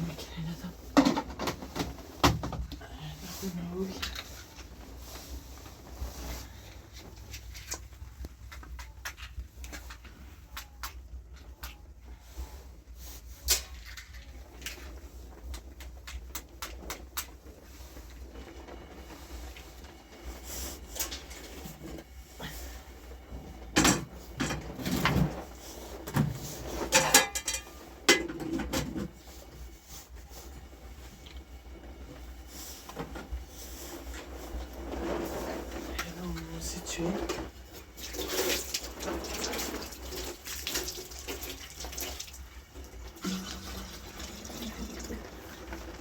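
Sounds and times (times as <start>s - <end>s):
hard objects knocking and scraping: 23.6s - 29.2s.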